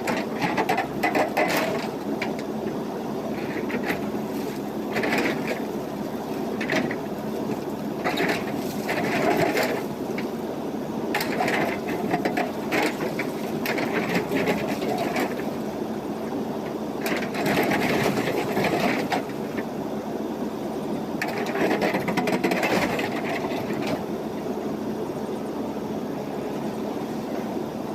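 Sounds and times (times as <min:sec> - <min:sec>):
digging and loading gravel: 0:00.0 - 0:15.9, 0:16.6 - 0:19.7, 0:21.2 - 0:24.2
backhoe diesel engine running: 0:00.0 - 0:27.9.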